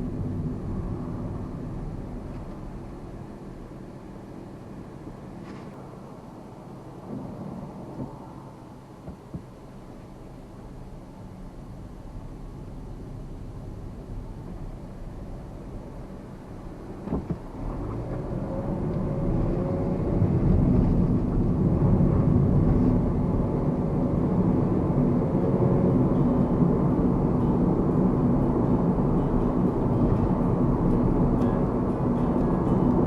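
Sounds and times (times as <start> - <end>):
road noise: 0.0 - 33.0
car engine accelerating: 13.7 - 33.0.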